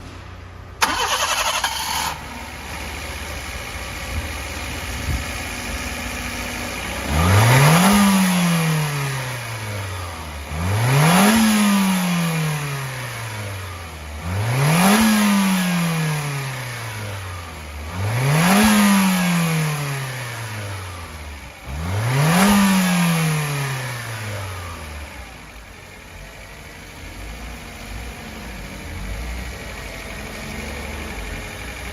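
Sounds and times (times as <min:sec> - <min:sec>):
car engine idling: 0:00.0 - 0:10.8, 0:23.7 - 0:31.9
car engine starting: 0:00.0 - 0:31.9
car engine revving: 0:00.8 - 0:31.9.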